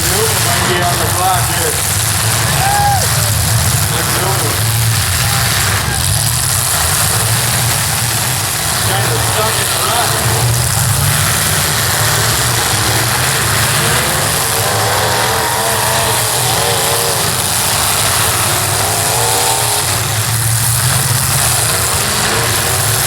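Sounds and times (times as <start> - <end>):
car engines running: 0.0 - 23.0
engine revving: 0.0 - 23.0.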